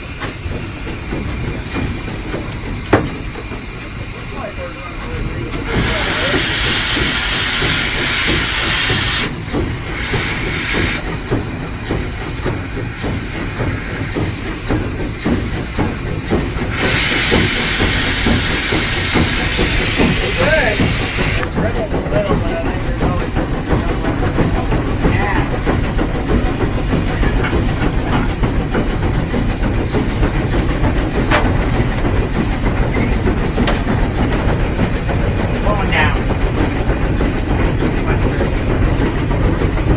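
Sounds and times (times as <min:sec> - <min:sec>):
locomotive knocking beat: 0:00.0 - 0:39.9
locomotive low rumble: 0:00.0 - 0:39.9
steam hissing: 0:00.0 - 0:39.9
knocks: 0:02.8 - 0:03.6.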